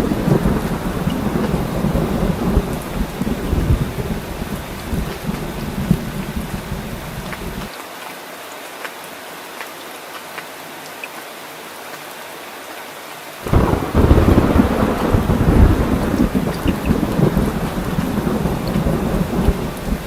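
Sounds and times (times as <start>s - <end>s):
loud rolling thunderclap: 0.0s - 7.7s, 13.4s - 20.0s
low rumble of thunder: 0.0s - 7.7s, 13.4s - 20.0s
steady rain: 0.0s - 20.0s.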